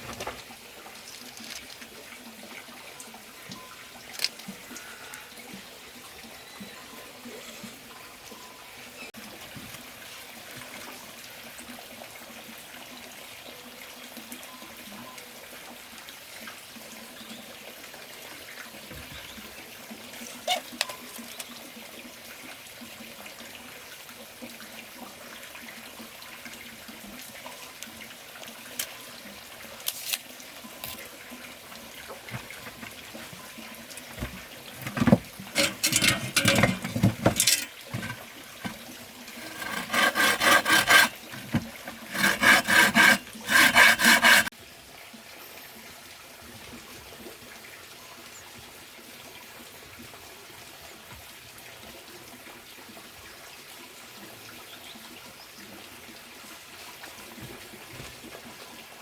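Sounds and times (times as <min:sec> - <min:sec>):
water trickling: 0:00.0 - 0:48.4.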